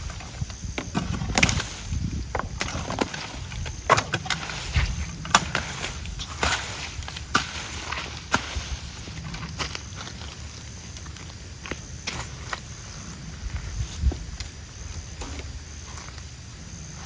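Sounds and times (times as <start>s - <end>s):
sticks and debris snapping: 0.9s - 10.2s.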